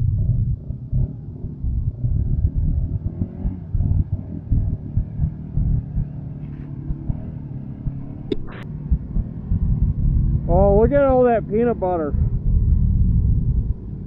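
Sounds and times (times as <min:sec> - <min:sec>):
atv engine revving: 0:00.0 - 0:14.0
sharp click: 0:07.9 - 0:08.7.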